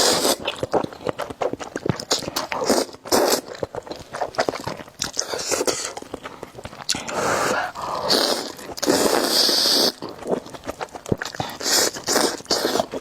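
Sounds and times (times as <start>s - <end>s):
mouth clicks: 0.0s - 13.0s
noodle slurping: 0.0s - 13.0s
wet chewing: 0.0s - 13.0s.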